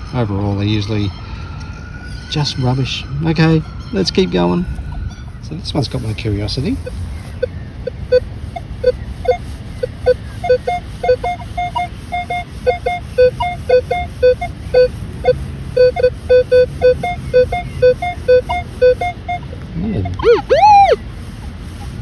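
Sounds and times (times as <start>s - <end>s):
metal detector beeps: 6.7s - 21.0s.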